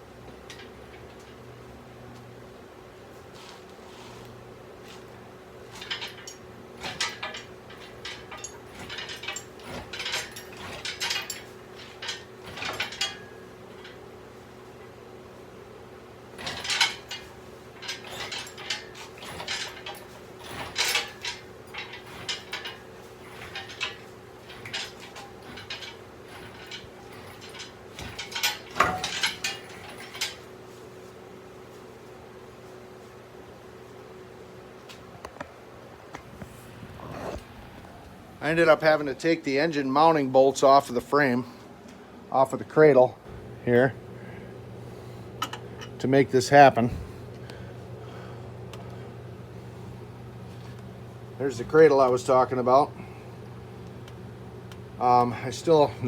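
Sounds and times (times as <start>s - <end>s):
faint steady hum: 0.0s - 56.0s
metal tools clanking and knocking: 0.4s - 1.4s, 5.7s - 14.1s, 16.3s - 30.5s, 44.9s - 47.2s.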